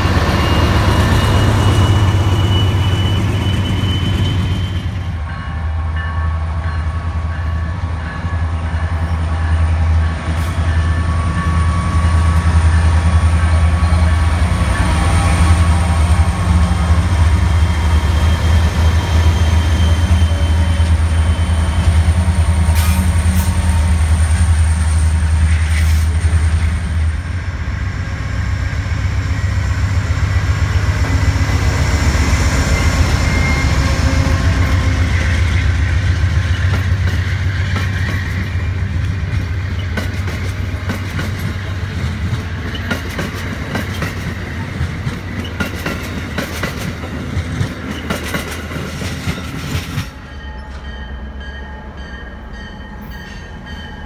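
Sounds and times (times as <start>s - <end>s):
diesel locomotive engine drone: 0.0s - 54.0s
rail car wheels clicking: 29.4s - 54.0s.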